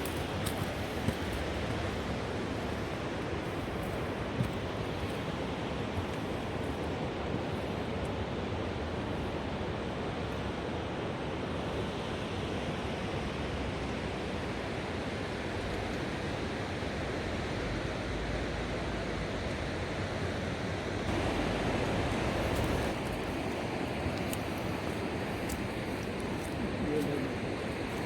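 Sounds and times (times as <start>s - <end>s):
river rushing over rapids: 16.4s - 28.0s.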